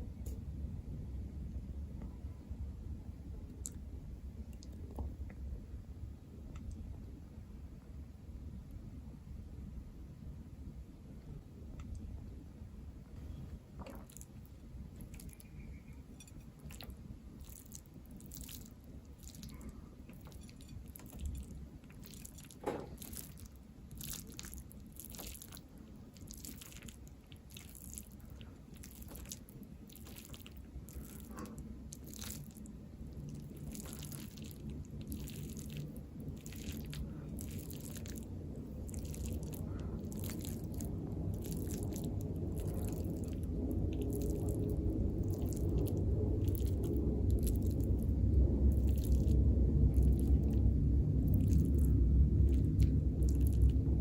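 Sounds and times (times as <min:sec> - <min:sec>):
low rumble: 0:00.0 - 0:54.0
chewing and biting food: 0:13.9 - 0:54.0.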